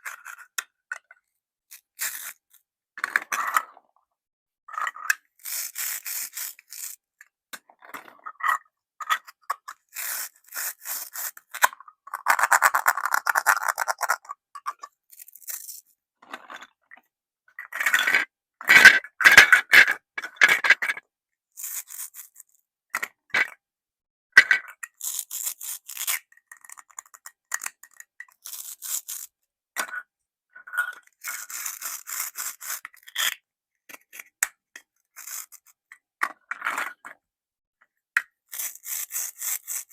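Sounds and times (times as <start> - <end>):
plastic toys clicking in basket: 12.2 - 14.3.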